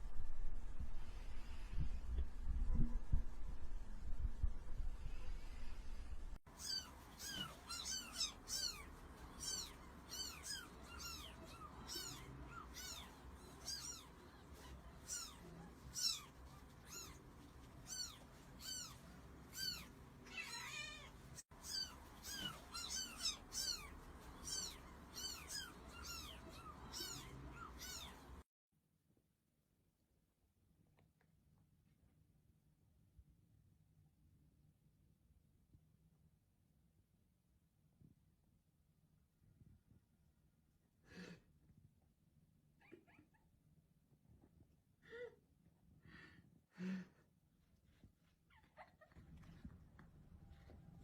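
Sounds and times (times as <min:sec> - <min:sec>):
kitten mewing: 0:06.6 - 0:28.4.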